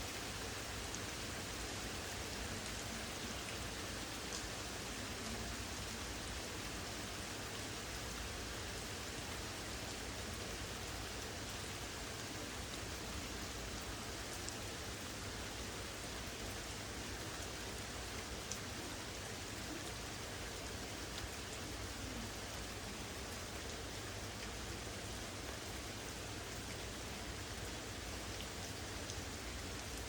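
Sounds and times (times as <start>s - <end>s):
steady rain: 0.0s - 30.0s
faint raindrop ticks: 2.5s - 4.6s, 5.2s - 6.1s, 13.6s - 14.7s, 16.4s - 18.9s, 19.6s - 25.6s, 27.5s - 30.0s.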